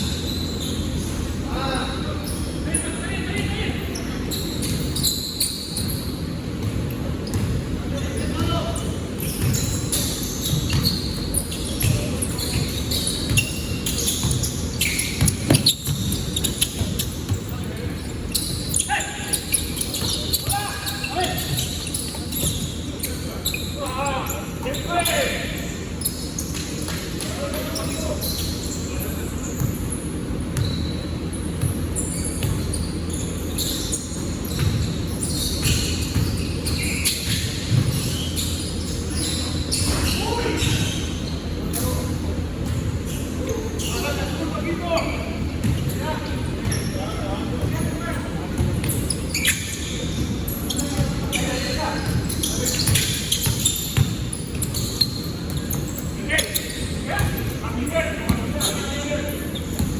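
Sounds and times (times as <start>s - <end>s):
sneaker squeaks: 0.0s - 59.9s
basketball bouncing on court: 5.8s - 22.9s, 30.5s - 38.4s, 45.4s - 58.8s, 59.6s - 59.9s
short high squeaks: 8.8s - 26.6s, 48.8s - 59.8s.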